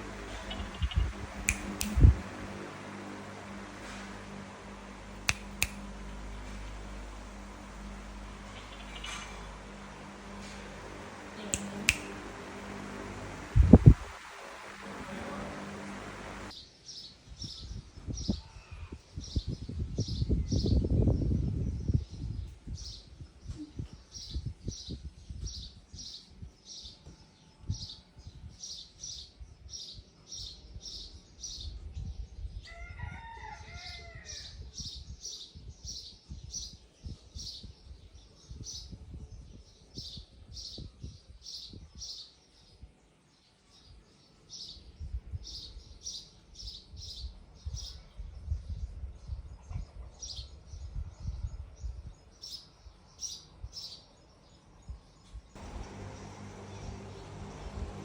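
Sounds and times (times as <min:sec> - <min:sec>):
bird chirping: 0:00.0 - 0:02.1, 0:06.3 - 0:17.6, 0:55.6 - 0:58.0
longer lower bird call: 0:00.0 - 0:16.5.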